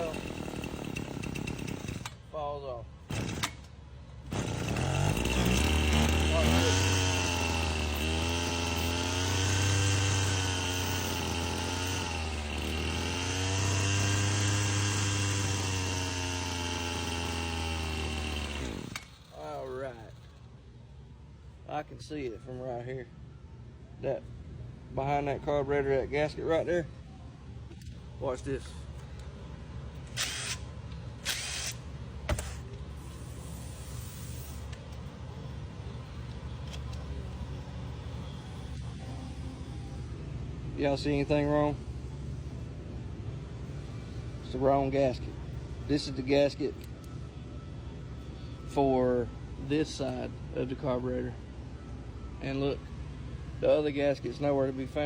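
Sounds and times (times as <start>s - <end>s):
string trimmer engine high idle: 0.0s - 2.2s, 4.3s - 20.0s
steady low hum: 0.0s - 55.0s.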